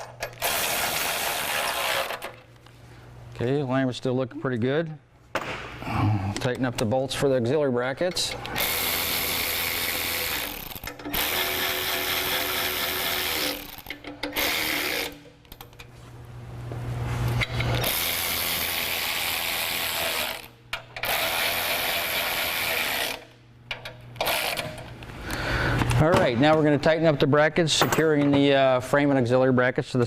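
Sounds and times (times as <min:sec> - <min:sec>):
power ratchet running: 0:00.4 - 0:02.4, 0:08.5 - 0:15.6, 0:17.4 - 0:24.9.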